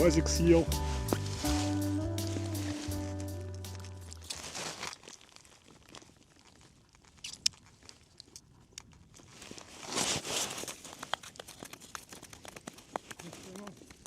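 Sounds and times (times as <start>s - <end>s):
background music: 0.0s - 4.3s
faint crunching and crackling: 0.9s - 14.0s.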